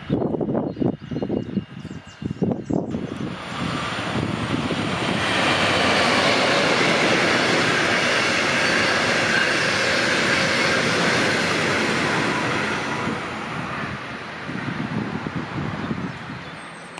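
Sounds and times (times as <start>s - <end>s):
train wheels rushing on rail: 2.4s - 16.9s.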